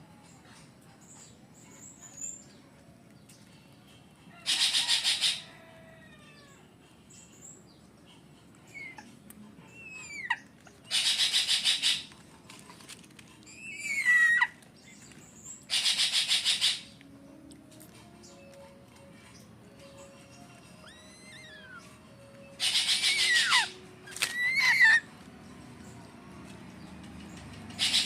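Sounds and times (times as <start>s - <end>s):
eagle chick chittering: 22.6s - 25.1s.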